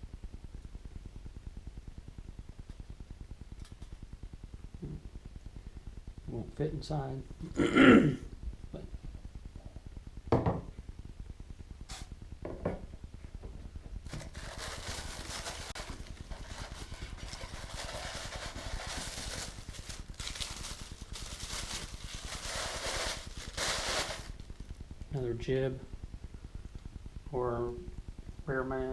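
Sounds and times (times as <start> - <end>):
packing material rustling: 14.1 - 24.7.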